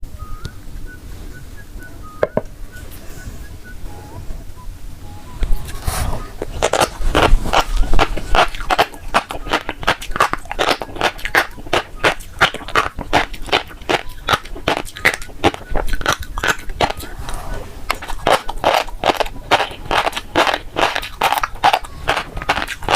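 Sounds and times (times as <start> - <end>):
wet clicks of chewing roe: 6.6 - 17.1, 17.9 - 22.9.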